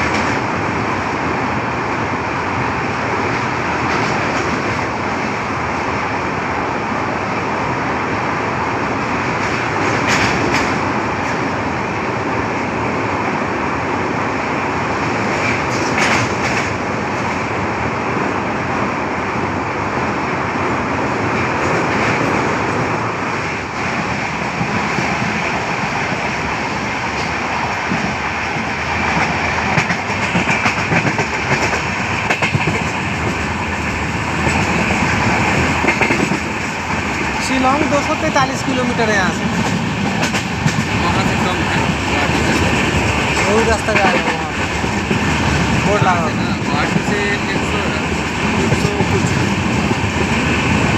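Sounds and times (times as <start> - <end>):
train rumble and air rush: 0.0 - 50.9
train wheels clacking: 9.4 - 11.4, 15.0 - 17.4, 23.4 - 38.4, 39.2 - 50.9.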